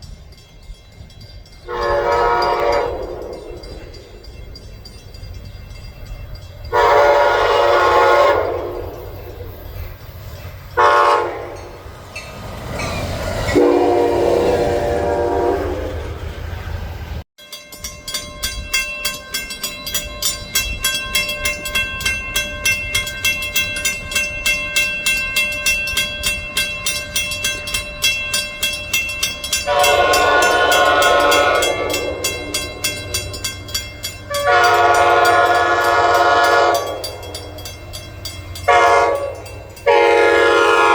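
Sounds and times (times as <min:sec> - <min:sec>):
train horn blasts: 0:01.6 - 0:03.7, 0:06.7 - 0:09.2, 0:10.8 - 0:11.8, 0:13.5 - 0:16.2, 0:29.6 - 0:33.0, 0:34.3 - 0:37.3, 0:38.6 - 0:40.9
train wheels clicking over rail joints: 0:16.2 - 0:40.9.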